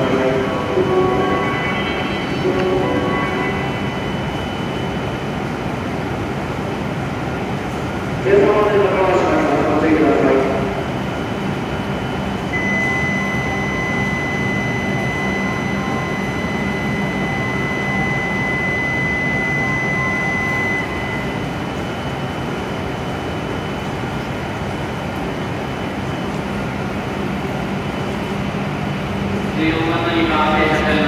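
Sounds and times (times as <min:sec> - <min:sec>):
high electronic tone: 0:00.0 - 0:05.3, 0:11.8 - 0:22.4
train and station hum: 0:00.0 - 0:31.0.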